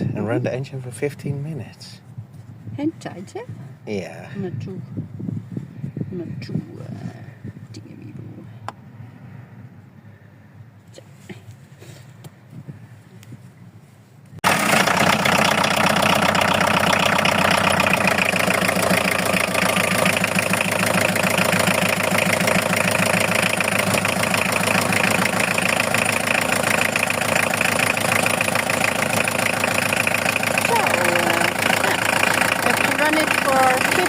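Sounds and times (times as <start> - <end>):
van engine idling: 14.4 - 34.0.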